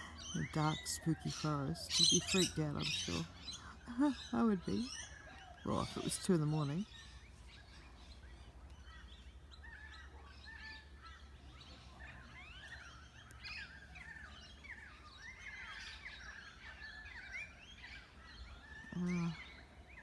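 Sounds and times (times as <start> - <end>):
chorus of distant birds calling: 0.0 - 20.0.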